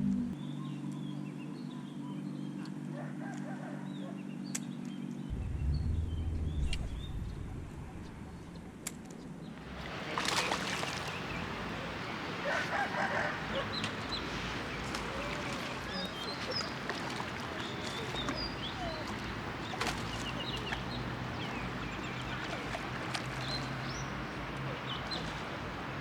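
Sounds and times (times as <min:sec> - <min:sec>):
steady low hum: 0:00.0 - 0:01.7, 0:05.3 - 0:09.9
rushing noise: 0:05.3 - 0:08.8
birds chirping and clucking: 0:10.4 - 0:25.6.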